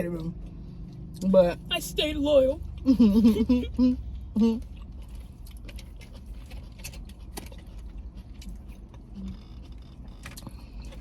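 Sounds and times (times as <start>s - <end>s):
chewing crispy fried food: 2.6s - 11.0s.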